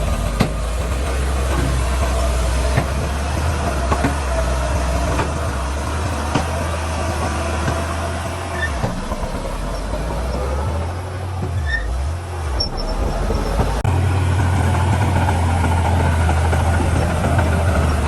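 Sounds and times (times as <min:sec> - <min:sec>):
heavy diesel machinery rumbling: 0:00.0 - 0:18.0
sharp knocks: 0:00.2 - 0:10.3.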